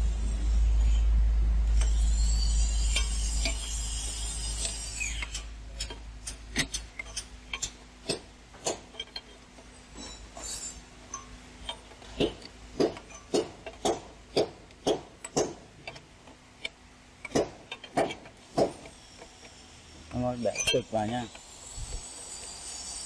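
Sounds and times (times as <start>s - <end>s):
low rumble: 0.0s - 6.5s
high whine: 0.0s - 7.9s.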